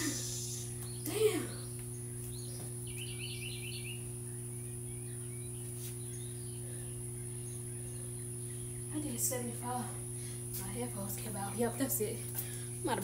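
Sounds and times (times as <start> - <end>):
bird chirping: 0.0 - 9.3
steady background hum: 0.0 - 13.0.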